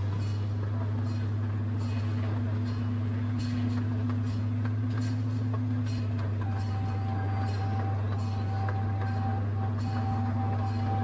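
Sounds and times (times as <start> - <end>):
low engine drone: 0.0 - 11.0
held tone: 6.4 - 11.0.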